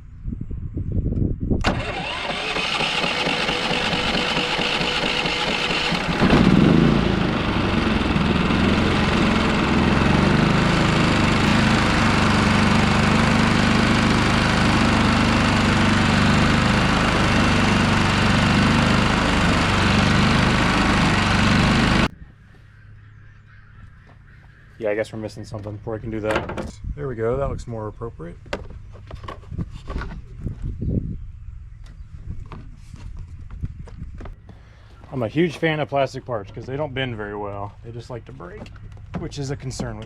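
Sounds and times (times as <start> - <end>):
generator cranking and running: 1.6 - 22.1.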